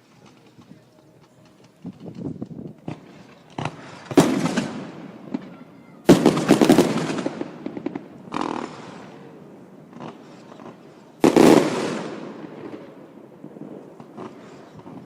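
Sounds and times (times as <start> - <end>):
fireworks bangs: 0.0 - 15.0
fireworks crackle: 0.0 - 15.0.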